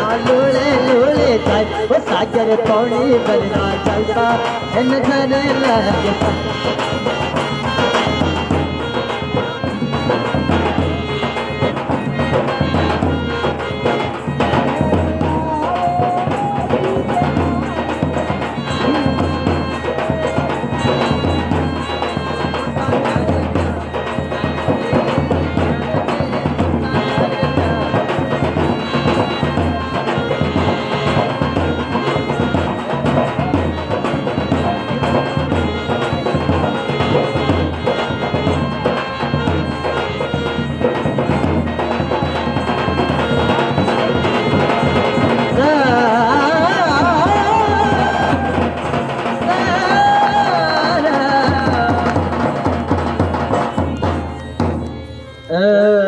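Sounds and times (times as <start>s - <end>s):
hand drum beat: 0.0s - 55.2s.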